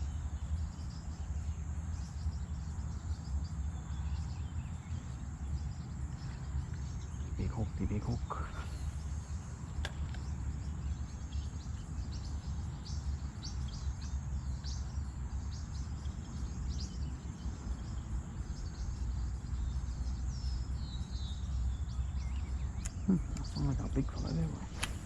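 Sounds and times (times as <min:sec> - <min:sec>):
small birds chirping: 0:00.0 - 0:25.0
click: 0:24.8 - 0:25.0.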